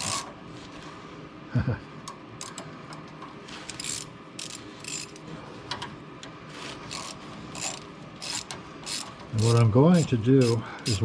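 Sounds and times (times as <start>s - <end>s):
hose clamp ratcheting clicks: 6.9s - 11.0s.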